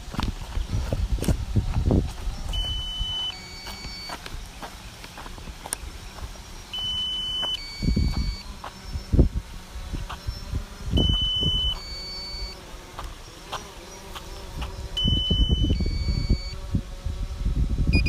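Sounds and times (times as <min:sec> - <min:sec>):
wind rumbling on microphone: 0:00.0 - 0:06.7, 0:07.3 - 0:12.1, 0:14.0 - 0:18.0
electronic warning beeps: 0:02.5 - 0:04.4, 0:06.7 - 0:09.0, 0:10.3 - 0:12.6, 0:14.8 - 0:16.6.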